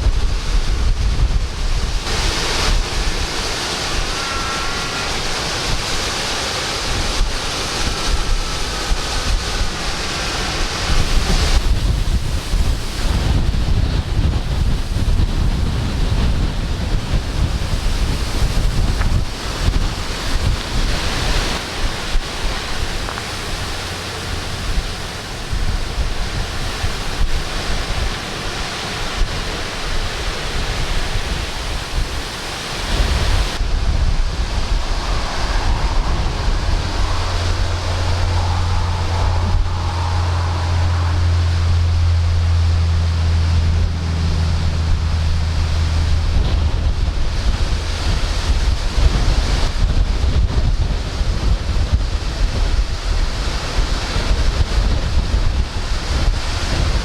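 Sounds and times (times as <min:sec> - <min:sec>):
wind gusting over microphone: 0:00.0 - 0:57.0
steady low hum: 0:33.0 - 0:50.9.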